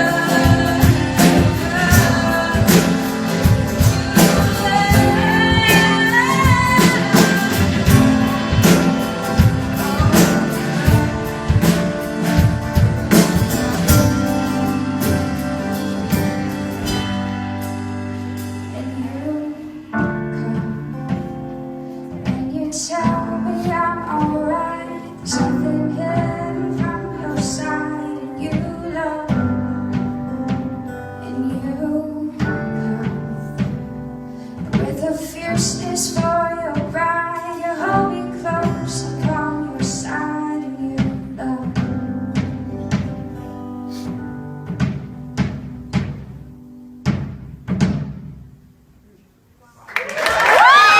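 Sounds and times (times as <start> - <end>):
person singing: 0.0 - 12.6, 34.7 - 42.1
sustained instrumental chords: 0.0 - 22.1.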